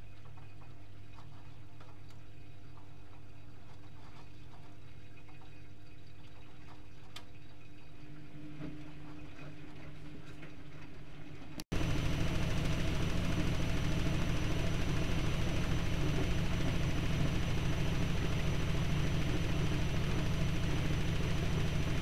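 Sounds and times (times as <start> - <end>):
washing machine humming: 0.0 - 22.0
washing machine drum spinning: 6.4 - 22.0.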